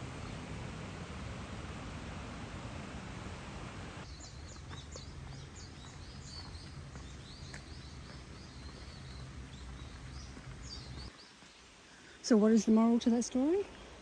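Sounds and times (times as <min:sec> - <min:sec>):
birds chirping: 0:04.0 - 0:14.0.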